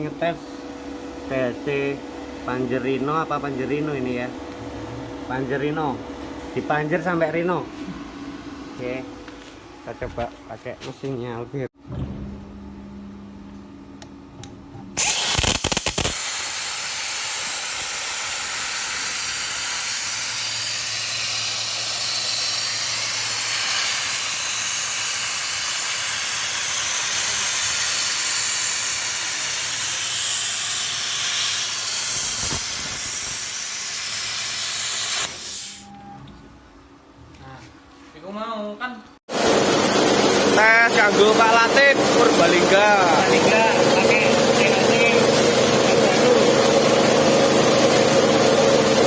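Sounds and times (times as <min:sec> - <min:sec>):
plasma cutter arc crackling: 0:15.0 - 0:35.8, 0:39.3 - 0:49.0
plasma cutter loud hiss: 0:15.0 - 0:35.8, 0:40.6 - 0:45.2.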